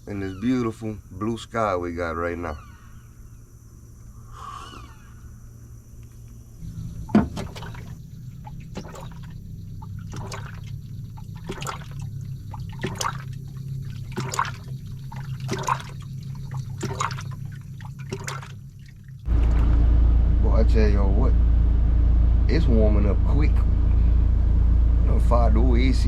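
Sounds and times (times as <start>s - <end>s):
low hum: 2.5s - 26.0s
coffee maker gurgling: 7.0s - 19.7s.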